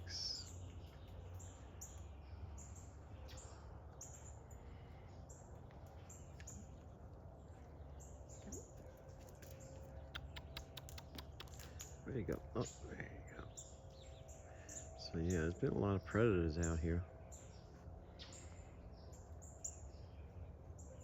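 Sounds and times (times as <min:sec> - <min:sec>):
small birds chirping: 0:00.0 - 0:21.0
sharp clicks: 0:09.4 - 0:12.0.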